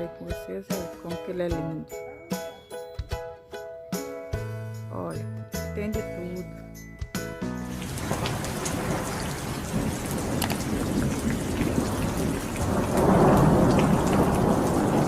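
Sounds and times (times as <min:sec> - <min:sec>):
heavy rain pouring: 0:07.7 - 0:15.0.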